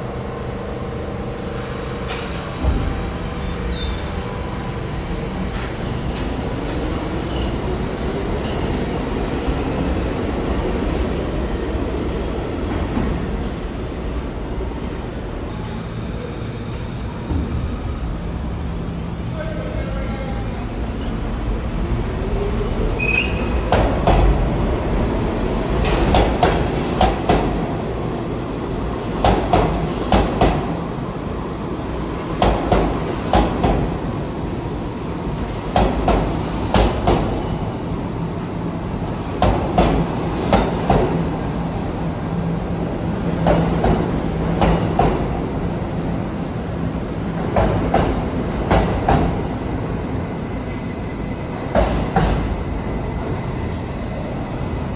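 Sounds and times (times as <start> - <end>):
subway train rumble: 0.0 - 54.9.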